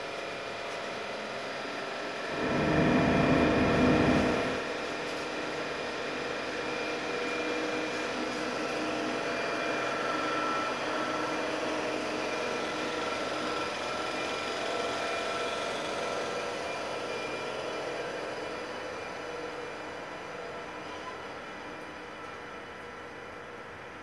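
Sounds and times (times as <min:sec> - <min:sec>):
fan-like hum: 0:00.0 - 0:24.0
whining electric tones: 0:02.2 - 0:04.7.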